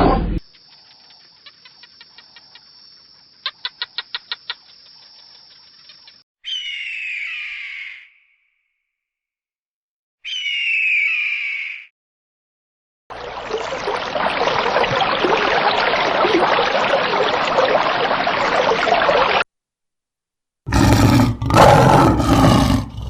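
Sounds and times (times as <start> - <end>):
bird squawking: 10.2 - 11.9
big cat roaring: 20.7 - 23.0.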